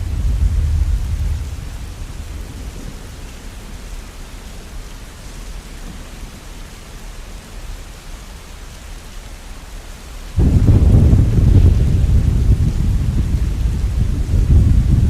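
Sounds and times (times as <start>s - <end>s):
low rumble of thunder: 0.0s - 6.5s, 10.4s - 15.0s
rain falling: 0.0s - 15.0s.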